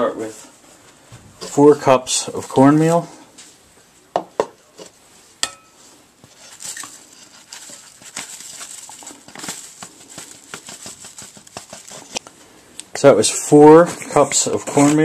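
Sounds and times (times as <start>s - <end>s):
cornmeal pouring patter: 6.4s - 12.2s.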